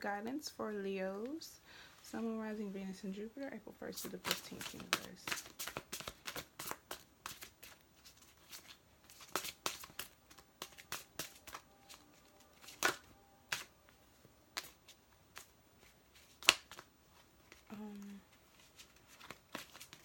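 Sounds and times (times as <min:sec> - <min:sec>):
cards being shuffled: 0:04.0 - 0:13.7, 0:14.5 - 0:20.0.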